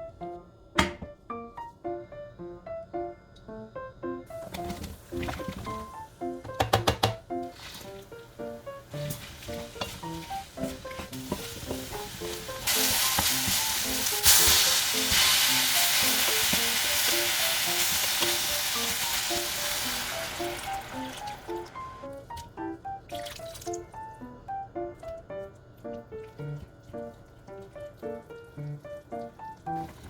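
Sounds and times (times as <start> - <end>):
light background music: 0.0 - 30.0
food sizzling in frying pan: 8.8 - 21.8.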